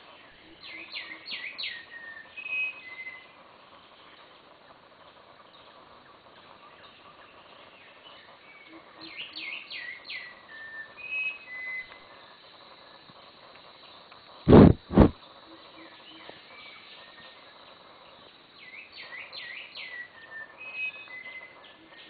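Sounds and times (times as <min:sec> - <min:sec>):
forest background hiss: 0:00.0 - 0:22.0.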